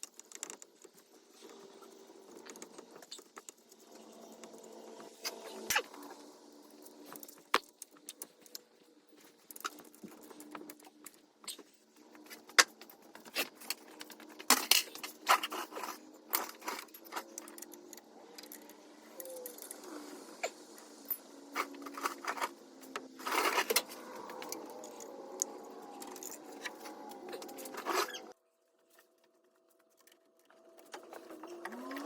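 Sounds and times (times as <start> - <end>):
metal tools clinking and clanking: 6.8 - 19.8, 20.8 - 28.3.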